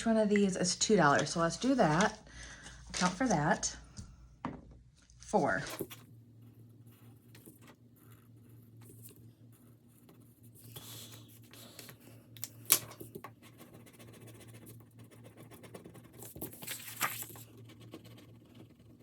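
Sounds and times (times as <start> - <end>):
paper rustling and scratching: 5.6 - 6.1, 6.7 - 19.0.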